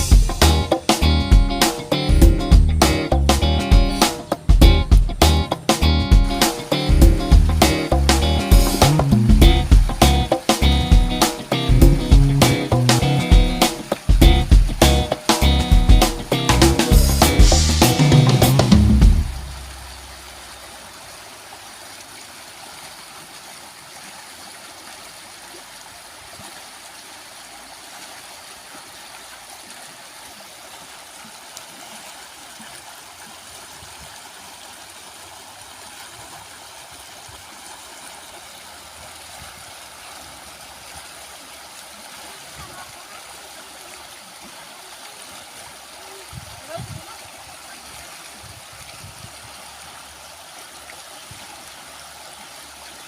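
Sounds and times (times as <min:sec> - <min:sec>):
background music: 0:00.0 - 0:19.7
flowing river water: 0:00.0 - 0:53.0.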